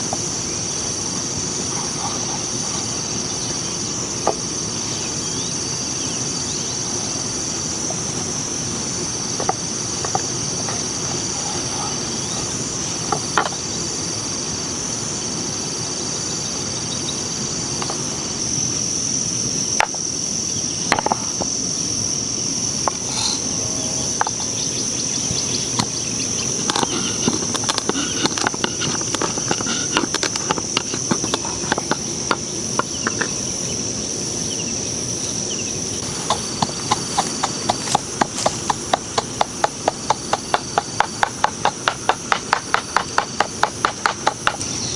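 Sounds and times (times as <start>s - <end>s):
high-pitched insect chorus: 0.0s - 44.9s
low outdoor rush: 21.4s - 44.9s
sharp clicks and taps: 36.0s - 44.7s.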